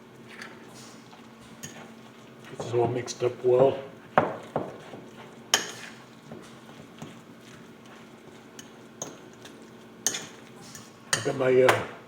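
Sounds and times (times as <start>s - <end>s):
utensils clinking on mixing bowl: 1.4s - 3.4s, 4.2s - 11.8s.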